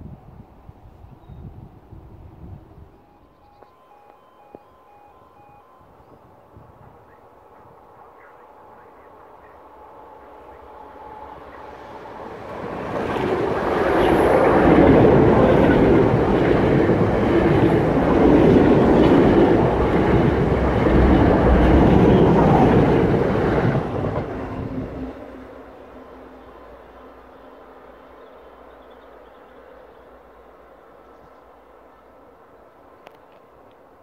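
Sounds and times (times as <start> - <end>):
train wheels rumbling on rail: 6.3 - 31.0.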